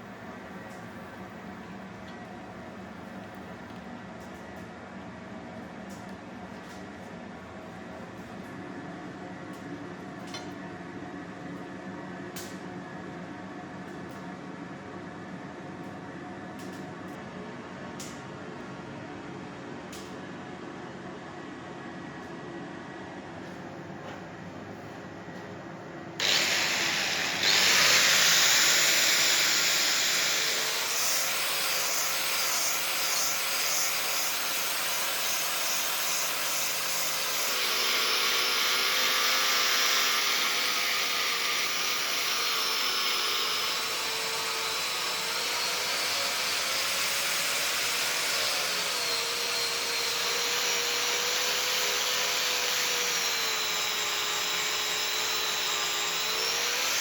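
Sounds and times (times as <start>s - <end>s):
electric power tool whining: 26.2s - 57.0s.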